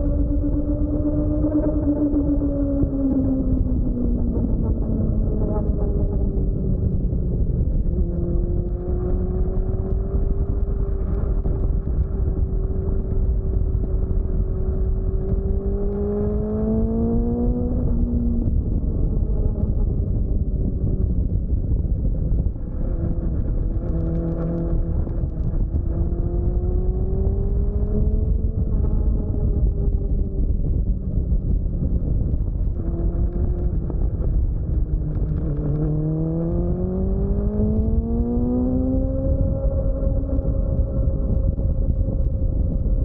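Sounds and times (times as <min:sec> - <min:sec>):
motorcycle engine accelerating: 0:00.0 - 0:43.0
wind rush on microphone: 0:00.0 - 0:43.0.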